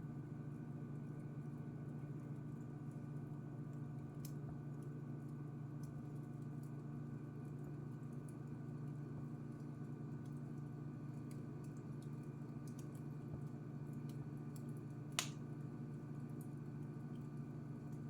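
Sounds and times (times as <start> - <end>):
wood fire crackling: 1.8 - 18.0.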